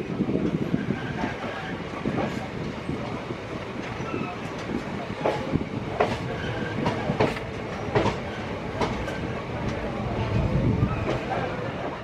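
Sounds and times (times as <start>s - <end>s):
train rumbling at speed: 0.0s - 12.0s
train wheels clattering over rail joints: 0.4s - 10.1s.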